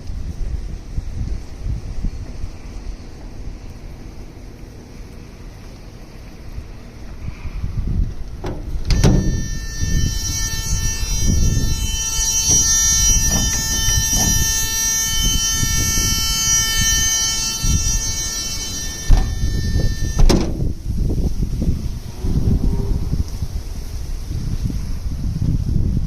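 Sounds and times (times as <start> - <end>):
wind rumble: 0.0 - 26.0
door clunk: 8.4 - 9.4, 19.0 - 19.5, 20.1 - 20.6
bus door alarm buzzer: 8.5 - 21.3.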